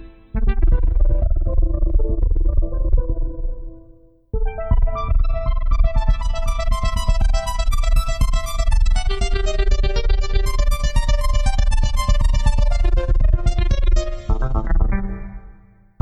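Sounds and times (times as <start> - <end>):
fast pulsing synth bass: 0.0 - 3.8, 4.4 - 15.4
bright synthesizer notes: 4.4 - 15.7.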